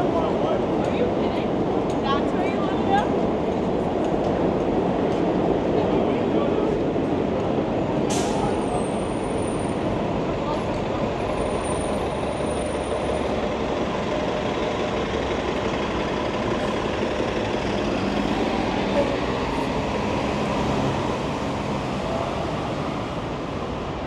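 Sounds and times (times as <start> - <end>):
city street traffic: 0.0 - 24.0
heavy vehicle engine running: 8.0 - 24.0.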